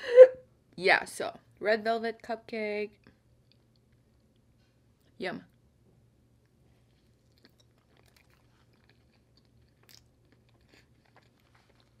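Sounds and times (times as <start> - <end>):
faint chewing: 3.0 - 5.1, 6.4 - 12.0.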